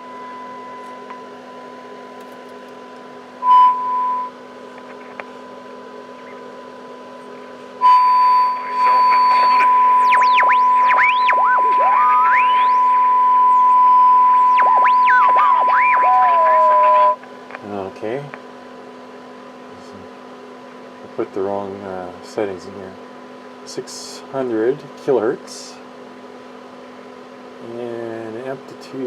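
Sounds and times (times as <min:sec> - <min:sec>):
radio test tone: 0:03.4 - 0:05.2, 0:07.8 - 0:17.2
low hum: 0:07.2 - 0:17.2
whistles gliding up and down: 0:07.8 - 0:17.2.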